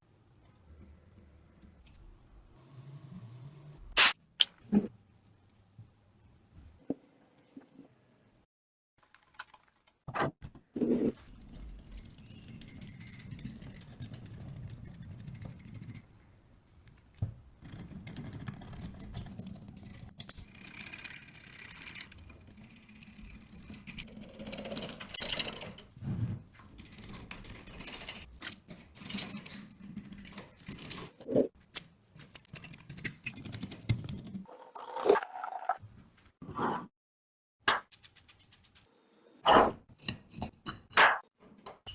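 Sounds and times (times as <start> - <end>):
metal parts clinking and scraping: 11.3 - 16.2, 17.6 - 25.9, 26.6 - 34.4.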